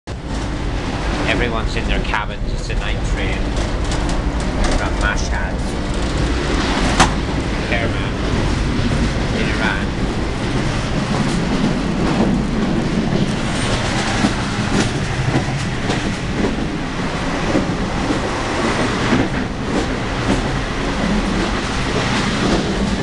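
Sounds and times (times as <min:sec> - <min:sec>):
train carriage rumbling: 0:00.1 - 0:23.0
knocks and rattles: 0:03.2 - 0:16.8.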